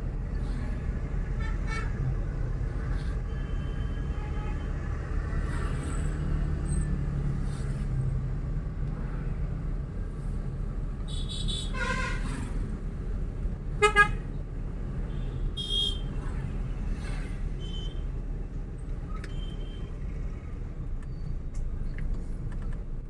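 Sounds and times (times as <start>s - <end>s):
road and engine rumble: 0.0s - 23.0s
car horn honking: 13.8s - 14.2s, 15.2s - 16.1s.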